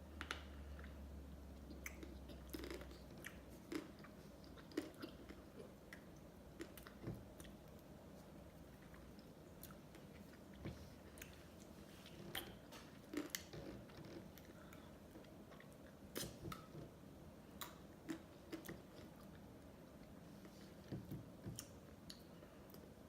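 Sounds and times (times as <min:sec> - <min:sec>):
mouth clicks and smacks eating: 0:00.1 - 0:07.9, 0:17.6 - 0:19.5.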